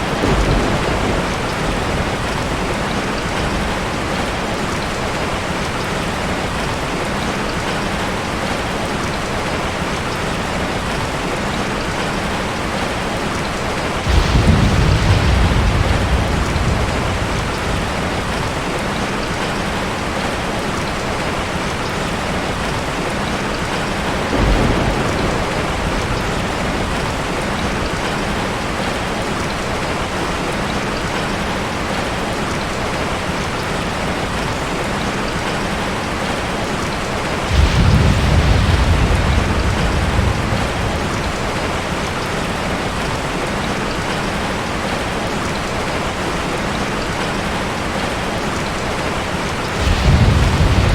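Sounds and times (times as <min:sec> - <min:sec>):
thunder rolling: 0:00.0 - 0:05.4, 0:13.8 - 0:19.6, 0:23.7 - 0:28.9, 0:37.3 - 0:43.0, 0:49.1 - 0:50.9
heavy rain falling: 0:00.0 - 0:50.9.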